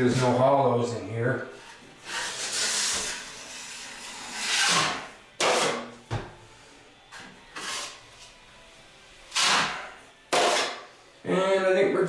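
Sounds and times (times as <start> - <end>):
drywall knife scraping swishes: 1.7 - 5.9, 9.3 - 10.9.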